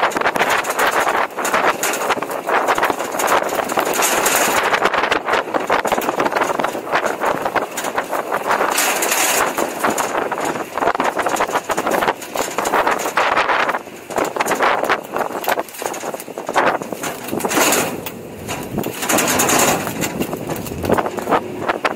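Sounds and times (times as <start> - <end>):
truck engine and road noise: 0.0 - 21.9
truck knocks and rattles: 0.0 - 21.9.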